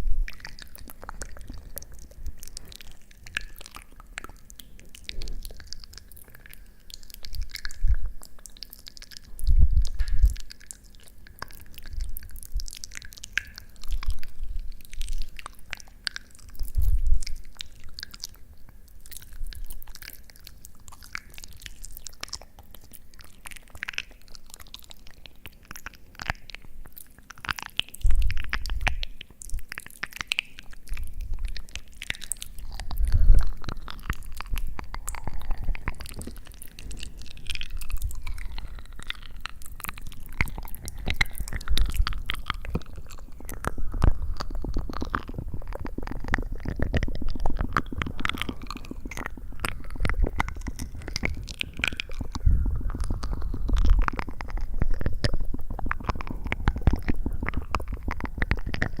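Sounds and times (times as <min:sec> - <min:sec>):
crisp clicks and crackles: 0:00.0 - 0:59.0.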